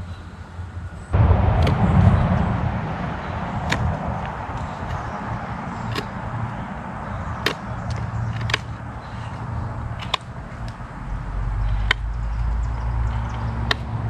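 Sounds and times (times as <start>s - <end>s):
low rumble: 1.1s - 7.0s
knife chopping into wood: 7.4s - 7.6s.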